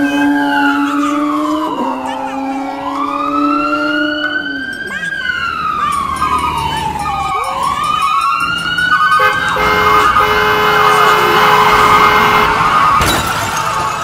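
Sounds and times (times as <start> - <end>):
siren wailing: 0.0 - 14.0
multi-note horn tone: 9.2 - 12.8.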